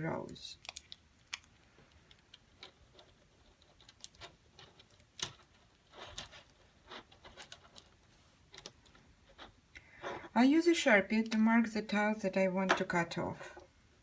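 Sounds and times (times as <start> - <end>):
plastic tiles clicking: 0.3 - 5.5.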